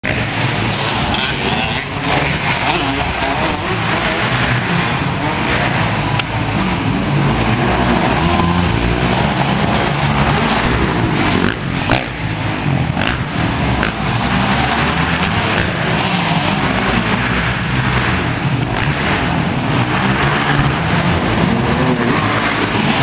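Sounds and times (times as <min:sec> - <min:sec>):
dirt bike engine running: 0:06.0 - 0:23.0.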